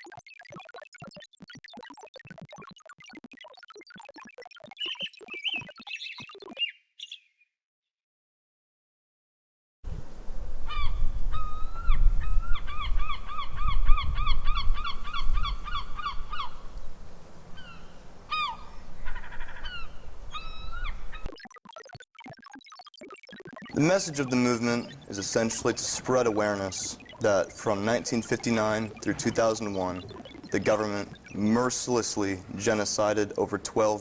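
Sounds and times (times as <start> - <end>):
wind rumble on microphone: 9.9 - 21.3
birds honking: 10.7 - 16.8, 17.4 - 21.3, 23.8 - 32.0.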